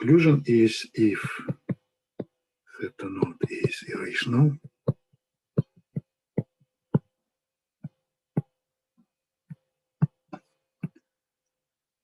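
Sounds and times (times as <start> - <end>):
handwriting taps on hard surface: 1.0 - 7.1, 7.8 - 8.6, 10.0 - 11.0.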